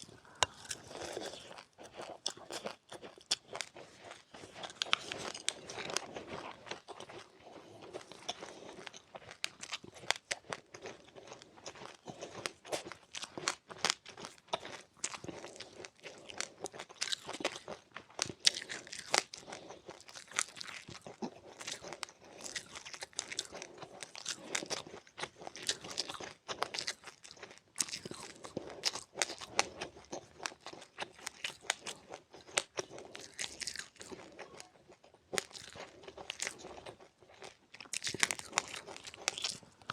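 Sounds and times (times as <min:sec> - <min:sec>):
person chewing crunchy seeds: 0:00.0 - 0:39.9.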